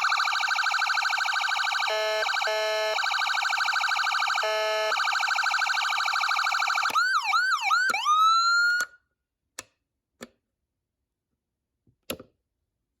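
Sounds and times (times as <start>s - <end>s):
electronic siren changing tones: 0.0s - 8.9s.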